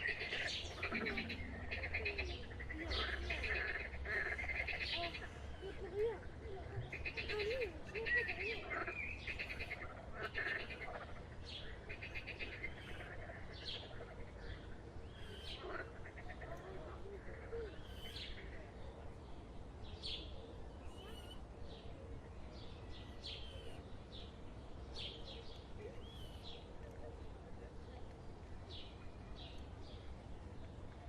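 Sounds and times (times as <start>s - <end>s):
birds chirping: 0.0s - 16.6s
low steady rumble: 0.6s - 4.3s.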